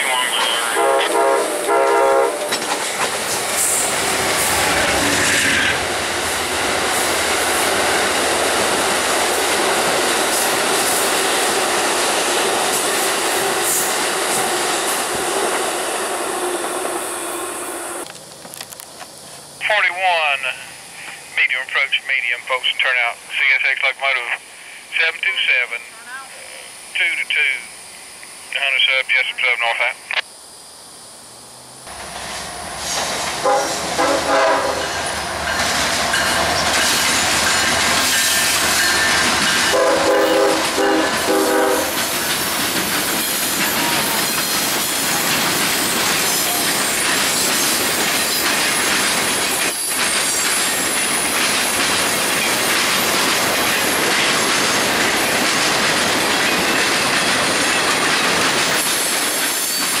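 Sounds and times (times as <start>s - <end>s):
train rumble and roar: 0.0s - 60.0s
train horn blasts: 0.7s - 2.6s, 33.4s - 34.9s, 39.7s - 42.0s
wheels clacking over rail joints: 2.4s - 15.6s, 34.8s - 39.9s, 41.9s - 60.0s.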